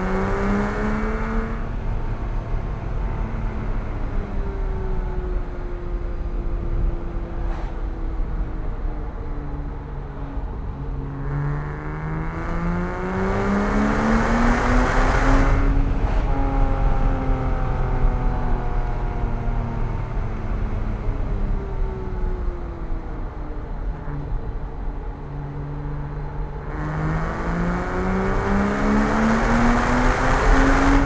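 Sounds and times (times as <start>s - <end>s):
car engine revving: 0.0s - 2.0s, 11.2s - 18.9s, 26.6s - 31.0s
low road rumble: 0.0s - 31.0s.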